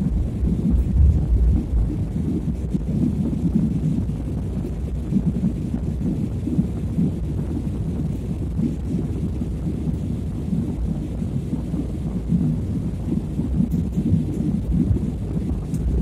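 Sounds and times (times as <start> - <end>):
airliner cabin engine rumble: 0.0 - 16.0.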